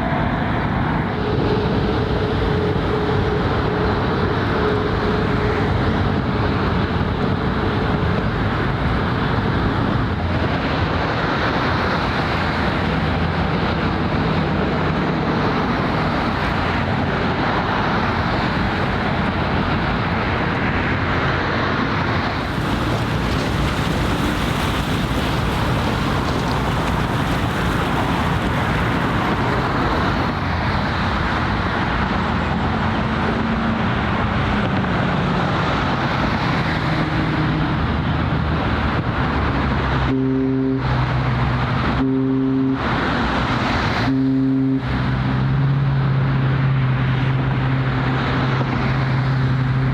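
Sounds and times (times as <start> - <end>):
road traffic: 0.0 - 49.9
water: 0.0 - 49.9
wind noise on microphone: 0.0 - 49.9.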